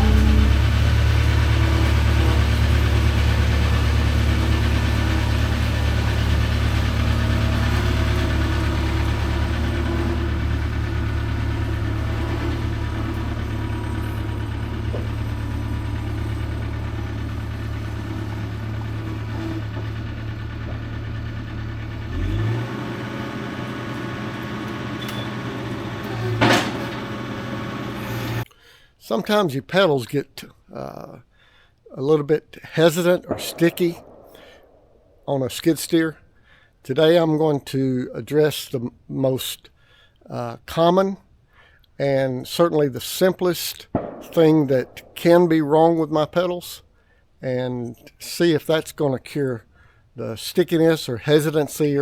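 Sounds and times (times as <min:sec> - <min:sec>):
diesel engine idling: 0:00.0 - 0:28.5, 0:32.8 - 0:35.2, 0:43.9 - 0:46.1.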